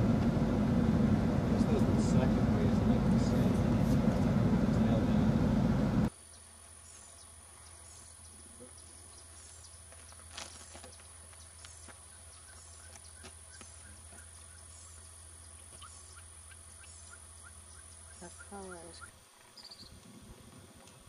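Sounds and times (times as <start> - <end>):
loud low rumble: 0.0 - 6.1.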